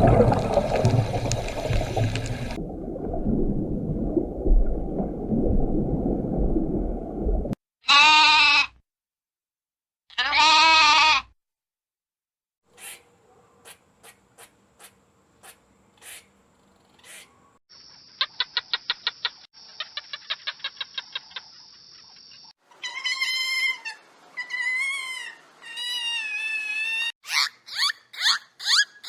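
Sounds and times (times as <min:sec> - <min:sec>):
rapid animal chirps: 0:12.8 - 0:29.0
wavering high-pitched animal calls: 0:22.7 - 0:29.0.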